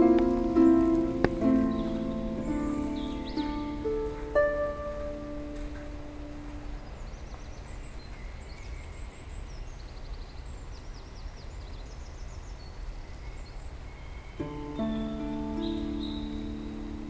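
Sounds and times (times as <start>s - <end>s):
music: 0.0s - 6.9s, 14.4s - 17.0s
rain hissing: 0.0s - 7.0s
small birds chirping: 0.0s - 17.0s.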